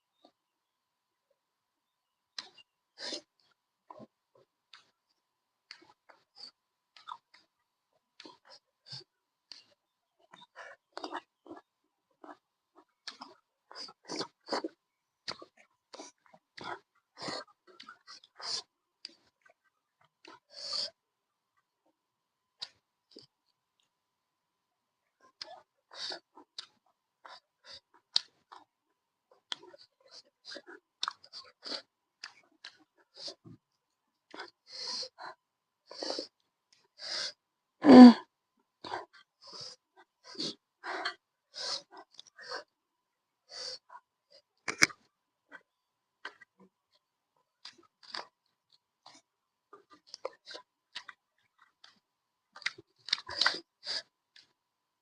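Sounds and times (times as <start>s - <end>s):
person chewing food: 2.3s - 5.0s, 5.6s - 20.9s, 25.3s - 28.7s, 29.3s - 37.0s, 38.8s - 42.8s, 43.7s - 54.6s.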